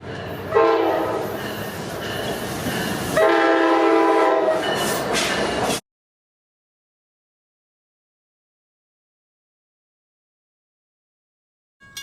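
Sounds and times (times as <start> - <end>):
passing train rumble: 0.0 - 5.8
locomotive horn blasts: 0.5 - 1.3, 3.2 - 4.6.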